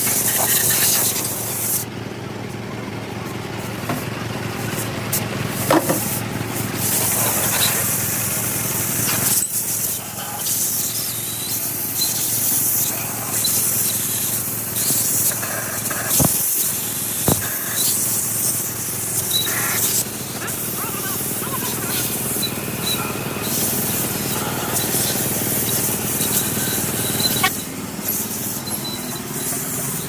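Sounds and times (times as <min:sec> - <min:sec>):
spray hissing: 0:06.7 - 0:30.0.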